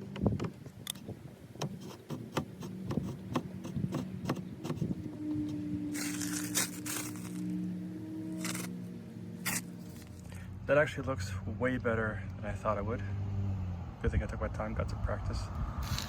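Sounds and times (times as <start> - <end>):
scraping hisses: 9.4 - 10.2.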